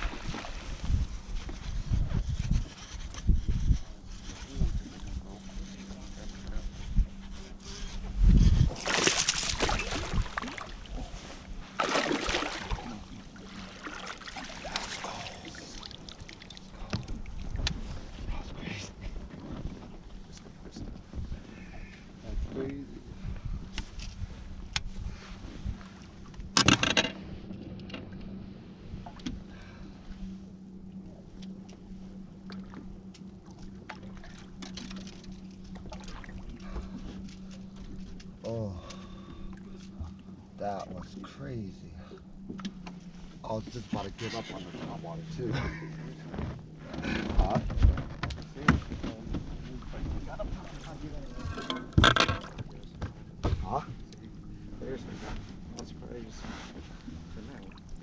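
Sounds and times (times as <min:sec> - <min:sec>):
faint steady hum: 0:00.0 - 0:58.0
water splashing against a boat: 0:00.0 - 0:58.0
water splashing: 0:08.7 - 0:17.6, 0:33.4 - 0:36.8.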